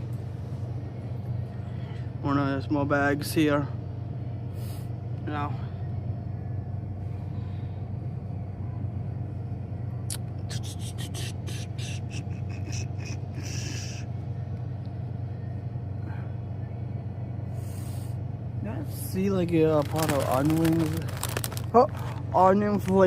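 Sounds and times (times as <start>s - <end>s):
low hum: 0.0s - 23.0s
chip bag crackling: 19.5s - 23.0s.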